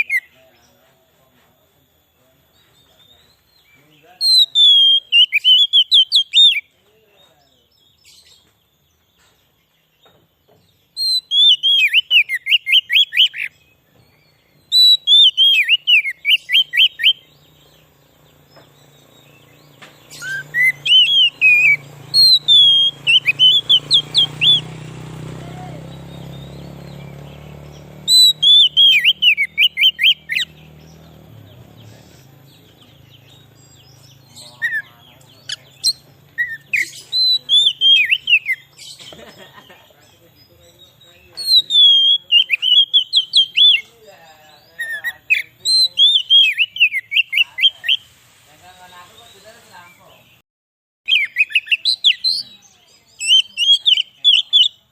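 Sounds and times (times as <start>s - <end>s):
bird singing whistled phrases: 0.0s - 0.4s, 3.0s - 6.7s, 10.9s - 17.9s, 18.7s - 39.0s, 40.8s - 43.9s, 44.7s - 48.1s, 51.1s - 54.9s.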